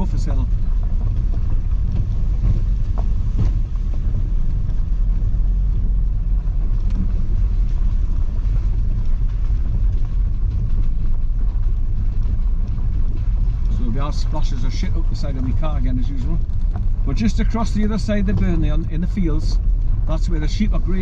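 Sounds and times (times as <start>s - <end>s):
engine and tyres rumbling: 0.0s - 21.0s.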